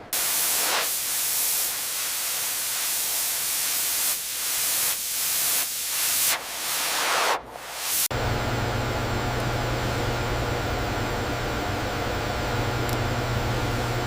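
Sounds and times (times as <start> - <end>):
loud steady hiss: 0.0 - 8.2.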